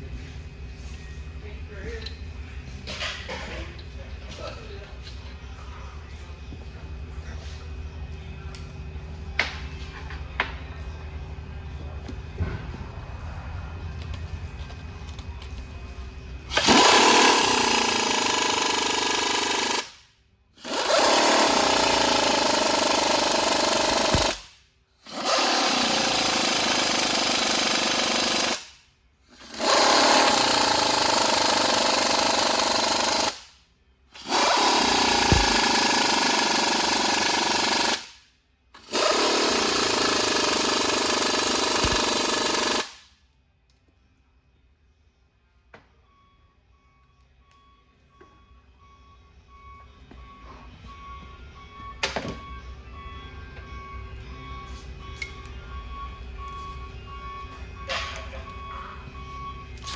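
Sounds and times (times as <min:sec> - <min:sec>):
pneumatic impact wrench: 0:16.5 - 0:38.2, 0:38.8 - 0:43.1.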